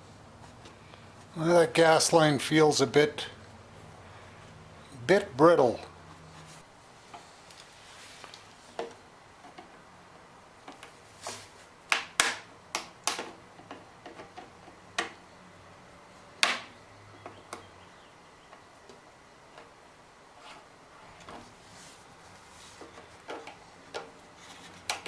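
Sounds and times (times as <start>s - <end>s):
hand tools clicking and knocking: 22.8s - 25.0s.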